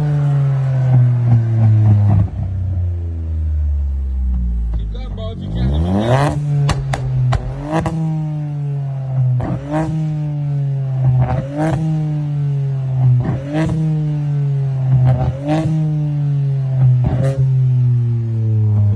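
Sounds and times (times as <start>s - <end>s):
car engine revving: 0.0s - 18.9s
sharp exhaust pops: 6.1s - 8.5s.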